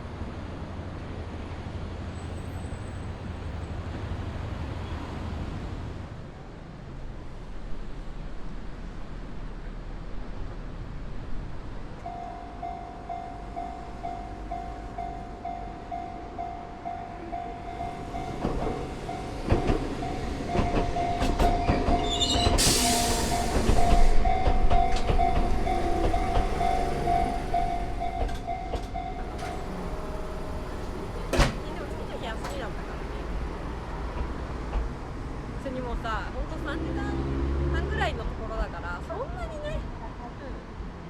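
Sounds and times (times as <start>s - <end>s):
level crossing warning bell ringing: 12.0s - 32.8s
train wheels knocking over rail joints: 18.1s - 32.7s.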